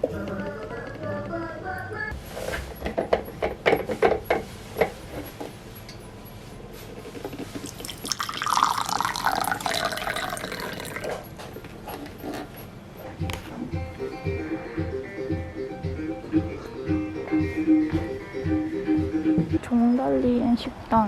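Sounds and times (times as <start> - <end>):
water pouring and dripping: 7.6 - 11.2.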